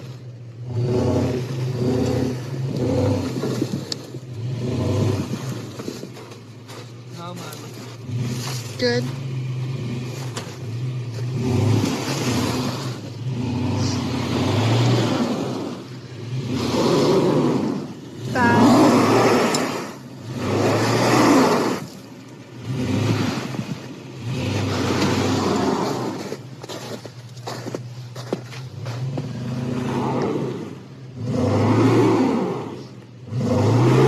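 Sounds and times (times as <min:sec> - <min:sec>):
road noise: 0:00.0 - 0:34.0
truck engine hum: 0:00.0 - 0:34.0.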